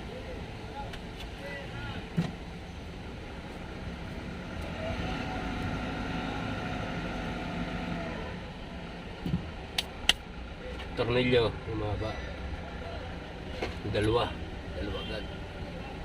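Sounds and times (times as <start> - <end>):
background noise: 0.0 - 16.0.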